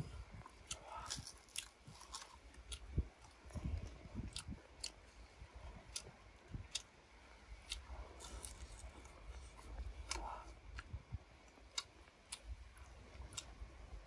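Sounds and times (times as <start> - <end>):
person chewing food: 0.0 - 13.6.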